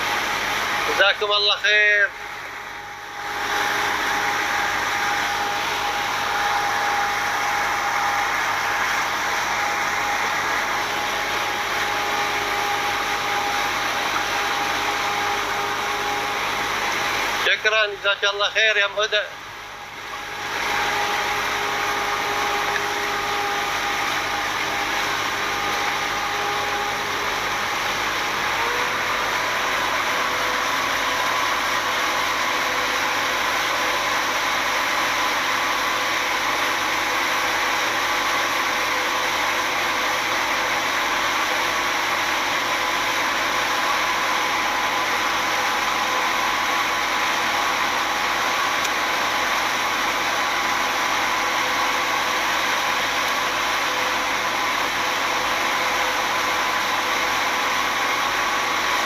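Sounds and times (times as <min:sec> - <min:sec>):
speedboat engine running: 0:00.0 - 0:17.5, 0:19.4 - 0:35.2.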